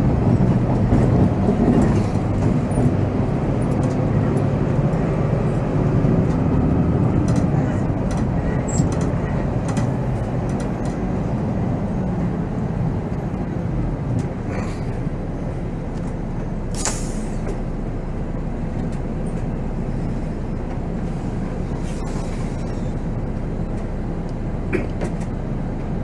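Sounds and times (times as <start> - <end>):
coach diesel engine rumble: 0.0 - 26.0
air brakes hissing: 16.7 - 17.6.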